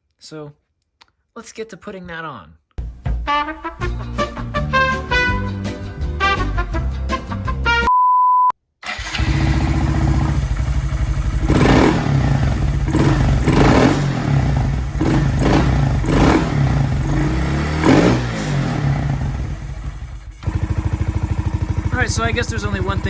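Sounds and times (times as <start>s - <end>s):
music: 2.8s - 7.9s
steady beep: 7.9s - 8.5s
motorcycle engine running: 8.8s - 23.0s.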